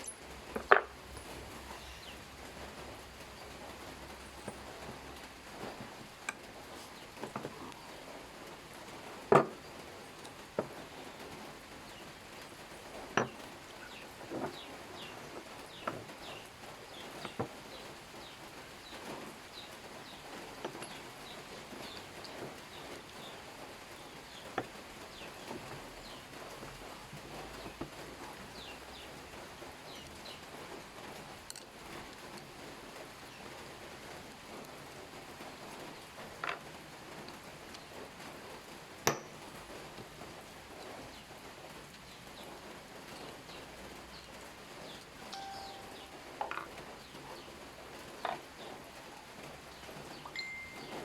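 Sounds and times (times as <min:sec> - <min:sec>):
background hiss: 0:00.0 - 0:51.0.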